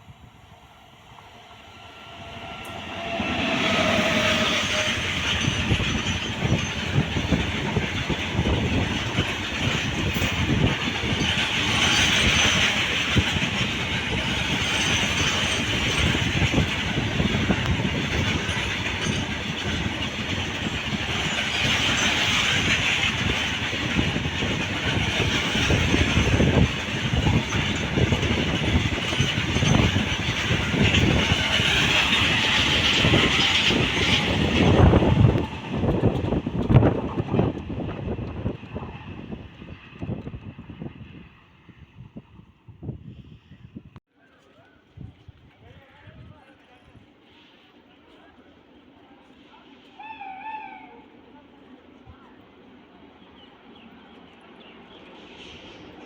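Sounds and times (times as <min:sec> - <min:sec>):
train wheels clattering: 0:02.4 - 0:40.5.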